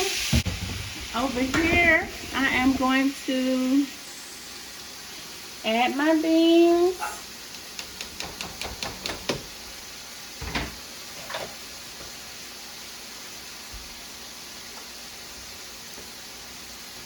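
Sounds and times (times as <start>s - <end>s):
low hiss: 0.0s - 17.0s
heavy thuds: 0.2s - 3.1s.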